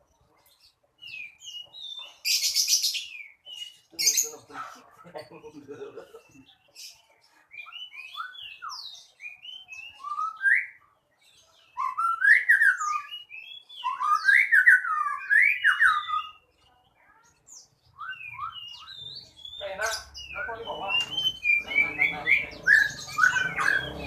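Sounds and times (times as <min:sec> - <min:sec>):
caged songbird singing: 0:00.0 - 0:24.0.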